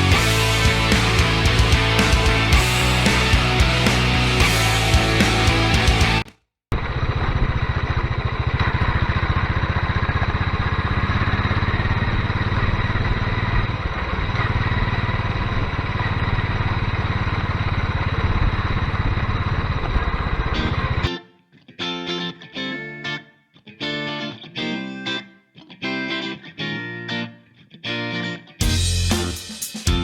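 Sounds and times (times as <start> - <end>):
motorcycle engine idling: 0.0 - 6.2, 6.8 - 19.9.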